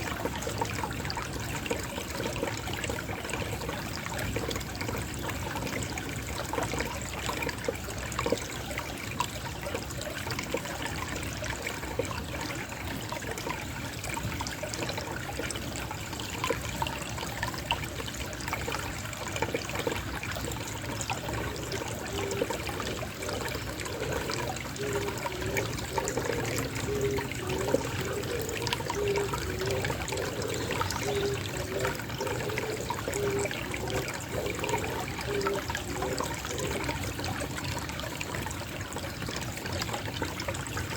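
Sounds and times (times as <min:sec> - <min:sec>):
stream trickling: 0:00.0 - 0:40.9
dove cooing: 0:19.4 - 0:37.3.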